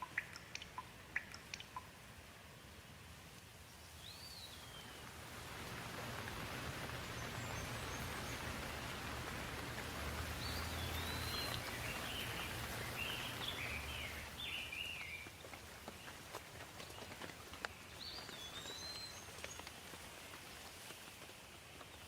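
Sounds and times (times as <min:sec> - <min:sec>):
bird chirping: 0:00.0 - 0:02.0, 0:03.7 - 0:05.1, 0:06.9 - 0:16.2, 0:16.8 - 0:19.7
sharp water drips: 0:00.0 - 0:02.1, 0:04.9 - 0:20.0
steady rain hiss: 0:00.0 - 0:22.0.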